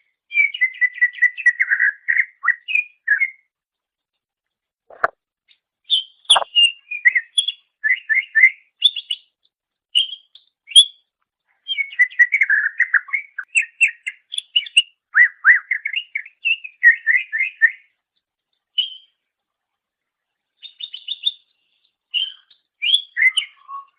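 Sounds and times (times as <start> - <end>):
bird singing chirps and trills: 5.9 - 9.4, 11.6 - 17.7, 20.6 - 23.9.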